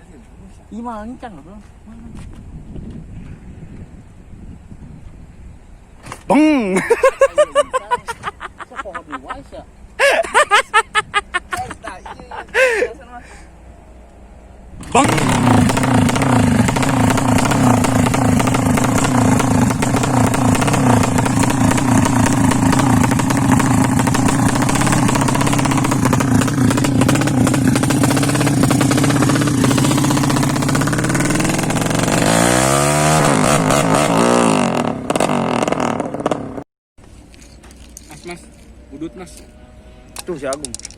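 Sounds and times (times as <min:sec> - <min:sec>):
motorcycle engine revving: 0:14.7 - 0:36.6.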